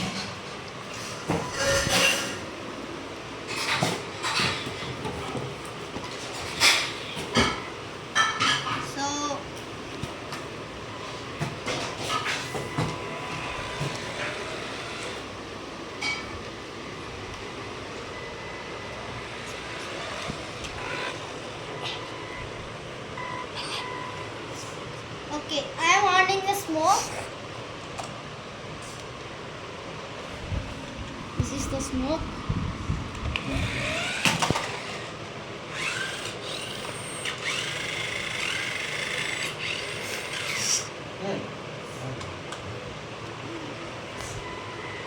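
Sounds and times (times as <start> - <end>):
small electric motor whining: 12.8 - 15.3, 18.2 - 22.4, 33.4 - 40.9
toy car whirring: 33.4 - 40.9.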